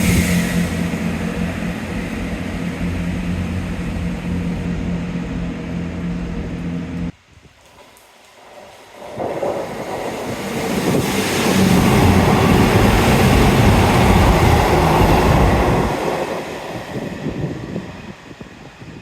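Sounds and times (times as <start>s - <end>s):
train rumble and wheel noise: 0.0s - 19.0s.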